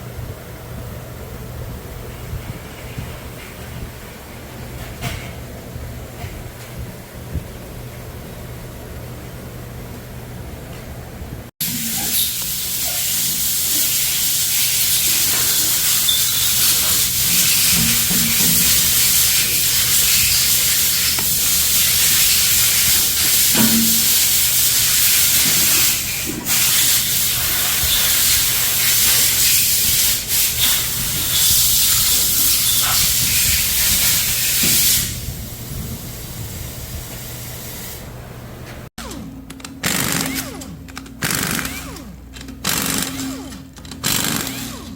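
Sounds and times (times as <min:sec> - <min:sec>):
loud steady hiss: 0:11.6 - 0:38.1.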